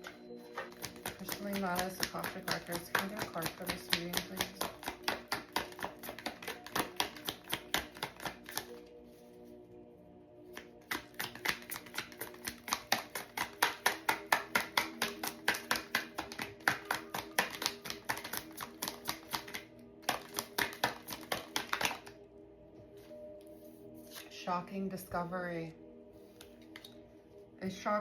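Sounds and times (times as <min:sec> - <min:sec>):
soft music with held tones: 0:00.0 - 0:28.0
cards shuffled by hand: 0:00.5 - 0:08.8, 0:10.6 - 0:22.1.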